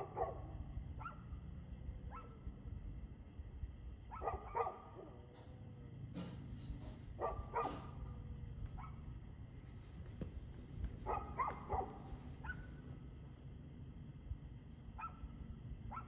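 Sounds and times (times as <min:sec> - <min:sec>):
dog barking: 0:00.0 - 0:01.4, 0:02.1 - 0:02.4, 0:04.1 - 0:05.2, 0:07.1 - 0:08.1, 0:08.7 - 0:09.1, 0:11.0 - 0:12.8, 0:15.0 - 0:15.3.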